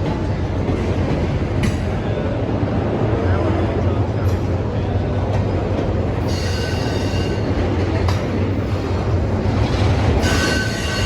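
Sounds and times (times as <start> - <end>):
freight train rumbling on rails: 0.0 - 11.0
wheel squeal: 10.2 - 11.0.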